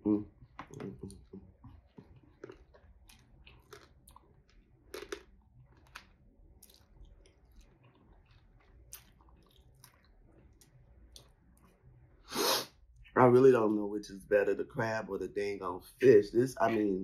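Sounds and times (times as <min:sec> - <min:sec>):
faint chewing: 0:00.3 - 0:12.2.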